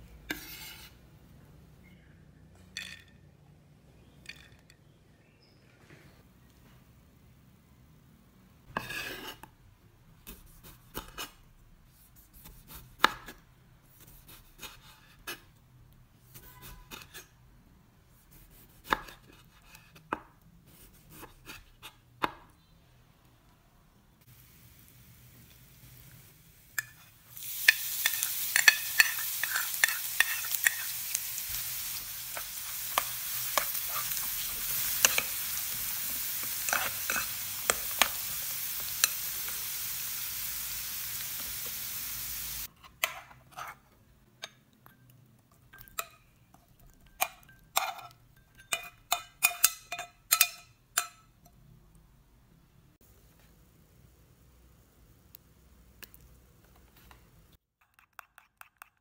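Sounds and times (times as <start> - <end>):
knife on cutting board: 0.3 - 1.0, 8.8 - 9.5
food frying in hot oil: 24.3 - 42.7.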